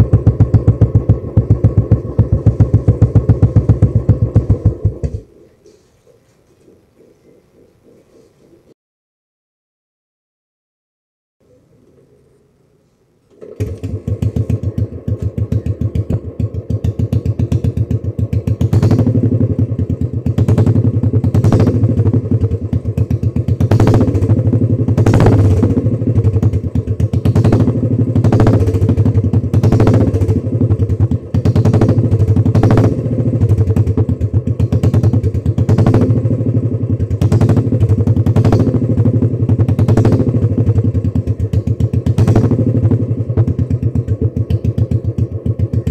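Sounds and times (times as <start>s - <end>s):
motorcycle engine thumping: 0.0s - 5.4s, 13.3s - 45.9s
sharp exhaust cracks: 0.0s - 5.4s, 13.3s - 45.9s.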